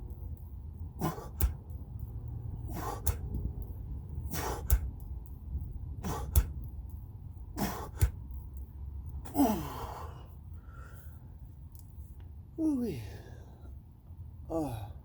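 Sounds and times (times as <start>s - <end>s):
wind rumble on microphone: 0.0s - 9.2s.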